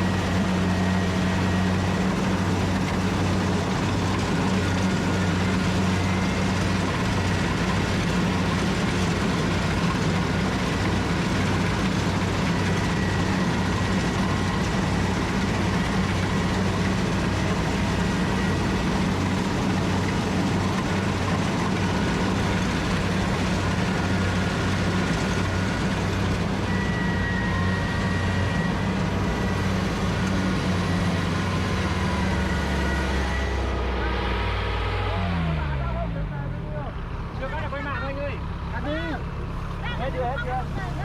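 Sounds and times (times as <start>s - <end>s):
faint high machinery whine: 0.0s - 35.5s
harvester engine running: 0.0s - 41.0s.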